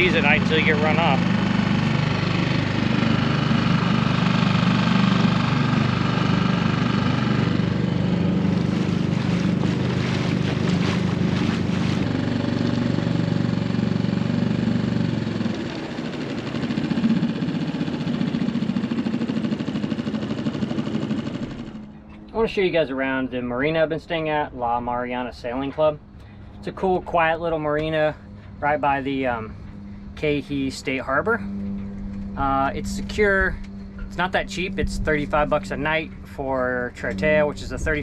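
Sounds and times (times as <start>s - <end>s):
outboard motor running: 0.0s - 23.8s, 25.9s - 38.0s
rapid knocks and splashes: 8.4s - 13.1s.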